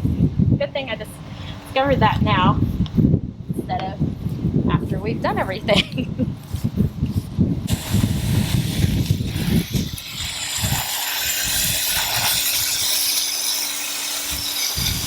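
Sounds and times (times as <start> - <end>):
garden hose spraying water: 7.7 - 15.0.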